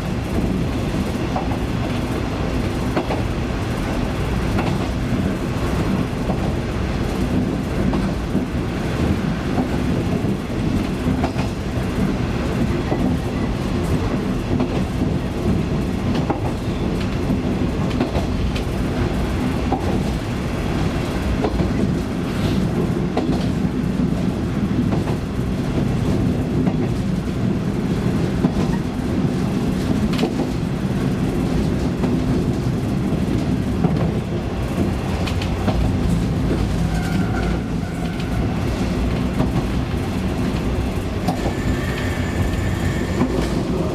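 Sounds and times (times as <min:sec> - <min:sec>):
wheel-on-rail running noise: 0:21.0 - 0:43.9.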